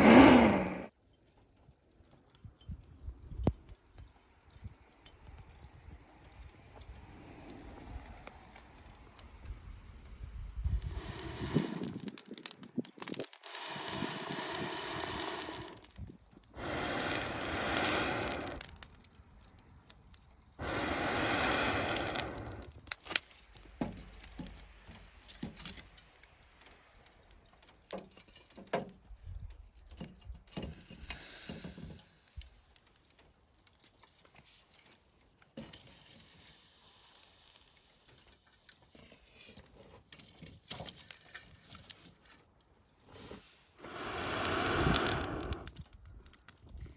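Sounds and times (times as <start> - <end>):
bursts of rushing air: 0.0 - 0.9, 10.8 - 12.2, 13.4 - 15.9, 16.6 - 18.7, 20.6 - 22.7, 43.8 - 45.8
wood fire crackling and popping: 0.0 - 46.9.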